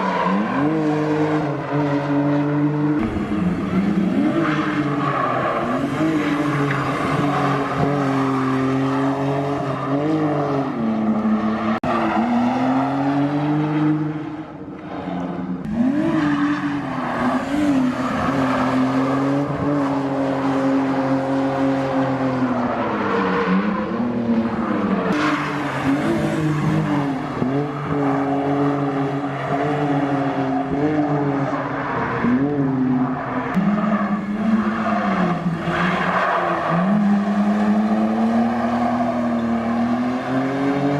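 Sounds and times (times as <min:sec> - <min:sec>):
tyres sliding on wet track: 0:00.0 - 0:02.2, 0:22.0 - 0:40.9
car engine revving hard: 0:15.6 - 0:22.3.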